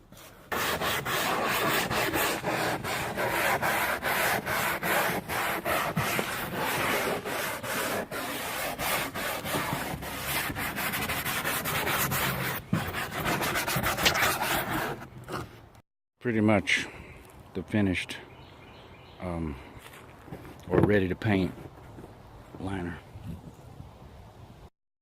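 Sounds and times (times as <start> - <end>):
fast rubbing strokes scrubbing: 0.5 - 15.1.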